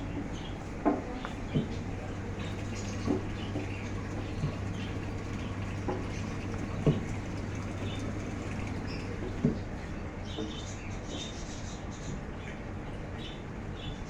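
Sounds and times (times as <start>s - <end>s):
steady low hum: 0.0s - 13.8s
caged birds chirping faintly: 0.0s - 14.0s
short knocks: 0.8s - 9.8s.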